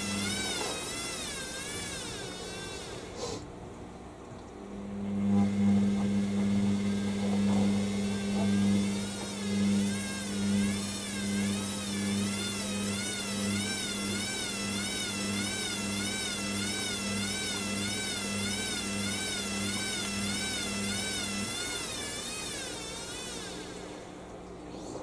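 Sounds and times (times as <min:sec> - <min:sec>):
washing machine drum motor whining: 0:00.0 - 0:24.6
low pulsing hum: 0:00.0 - 0:25.0.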